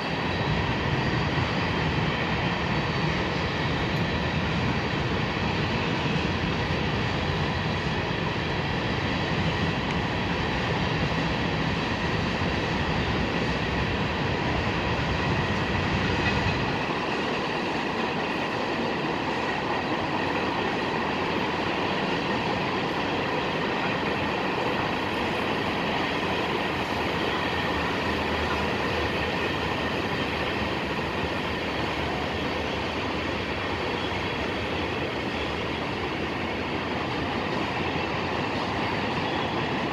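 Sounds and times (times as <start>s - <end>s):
train wheels on rail: 0.0s - 39.9s.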